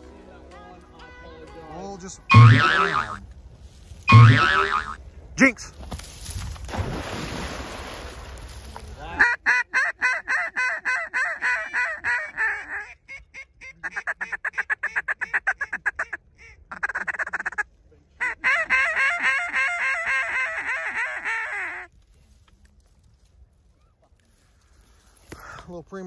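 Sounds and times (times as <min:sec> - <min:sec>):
goose honking: 0:02.3 - 0:03.2, 0:04.1 - 0:05.0
rustling noise: 0:03.2 - 0:04.1, 0:05.0 - 0:06.8, 0:07.9 - 0:09.0, 0:21.9 - 0:25.4.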